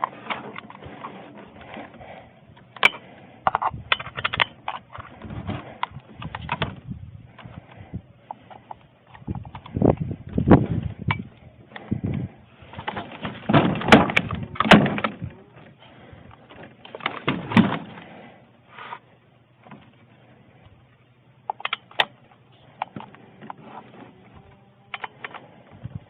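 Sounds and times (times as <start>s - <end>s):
knocks clunks and clatter: 0.0s - 18.1s, 19.6s - 20.0s.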